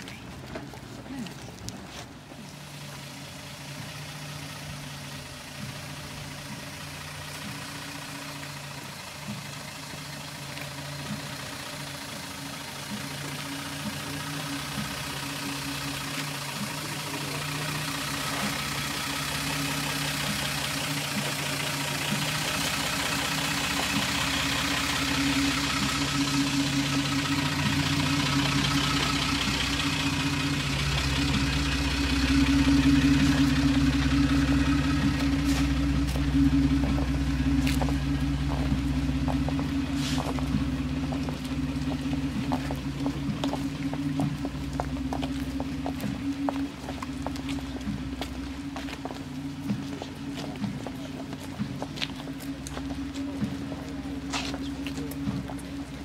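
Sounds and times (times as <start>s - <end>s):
car engine running at a crawl: 0.0s - 56.0s.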